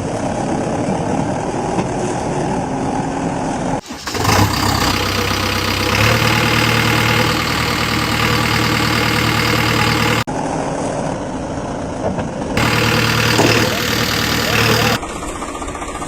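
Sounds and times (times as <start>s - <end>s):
engine idling: 3.8s - 10.3s, 12.6s - 16.0s.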